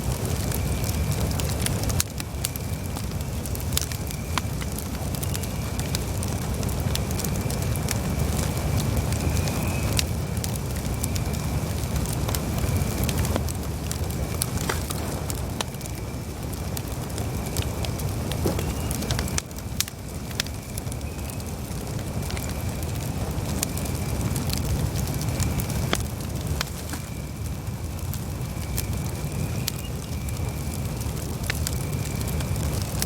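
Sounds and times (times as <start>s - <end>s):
burning wood crackling and popping: 0.0s - 33.0s
campfire flames rushing: 0.0s - 33.0s
faint high whistle: 18.4s - 19.1s.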